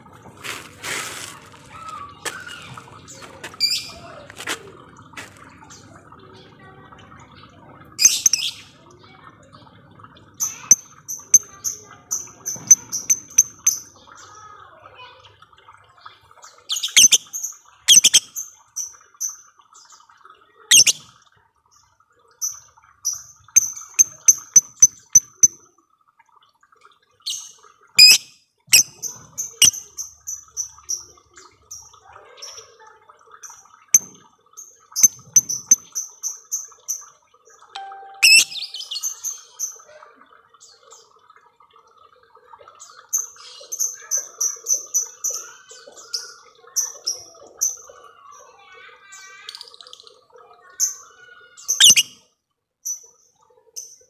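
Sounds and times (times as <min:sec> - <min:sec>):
lovebird chattering: 0:16.8 - 0:17.2, 0:17.9 - 0:18.2, 0:20.7 - 0:21.0, 0:28.0 - 0:29.0, 0:37.8 - 0:39.0, 0:51.8 - 0:52.1.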